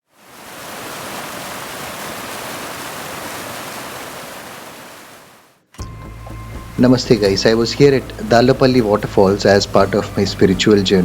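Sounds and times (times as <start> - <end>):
waterfall rushing: 0.1 - 5.5.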